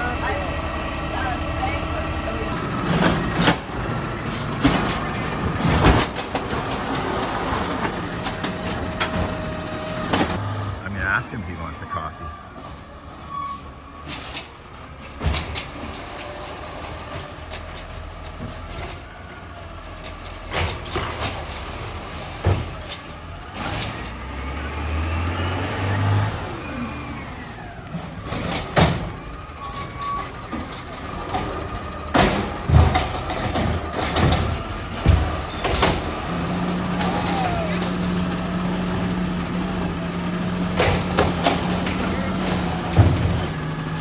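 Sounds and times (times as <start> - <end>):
garbage truck engine running: 0.0 - 44.0
metallic clanks and bangs: 27.9 - 39.2, 40.5 - 44.0.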